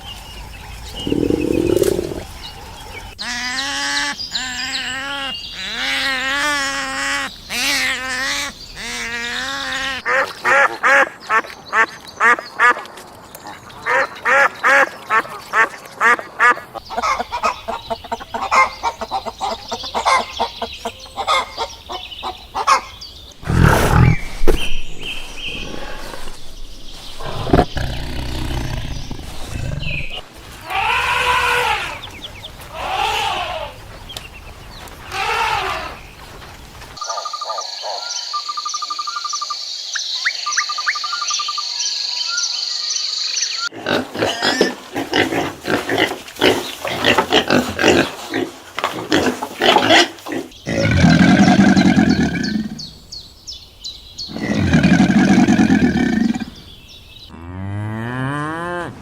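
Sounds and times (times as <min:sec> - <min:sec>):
rising and falling animal calls: 0:00.4 - 0:11.0, 0:27.2 - 0:33.8, 0:34.8 - 0:36.1, 0:54.3 - 0:56.8
cow mooing: 0:57.3 - 0:59.0.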